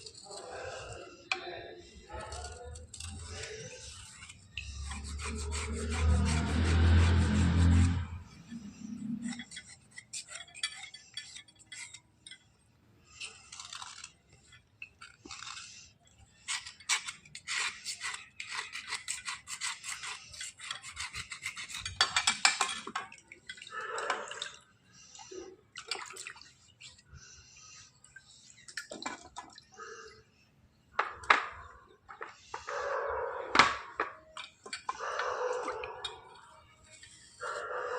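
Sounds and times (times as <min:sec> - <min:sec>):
gritty scraping strokes: 0:00.0 - 0:12.5, 0:13.1 - 0:22.6, 0:34.6 - 0:37.9.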